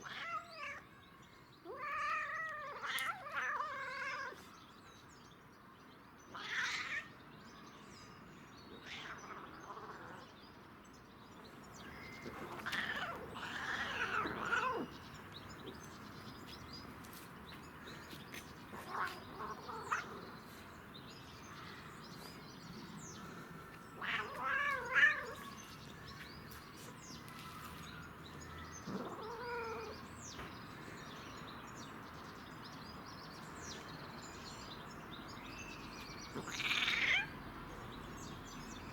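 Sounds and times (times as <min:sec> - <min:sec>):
cat meowing and yowling: 0:00.0 - 0:00.9, 0:01.6 - 0:04.4, 0:06.3 - 0:07.1, 0:08.8 - 0:10.2, 0:12.2 - 0:14.9, 0:18.8 - 0:20.3, 0:24.0 - 0:25.6, 0:28.9 - 0:30.0, 0:36.4 - 0:37.4.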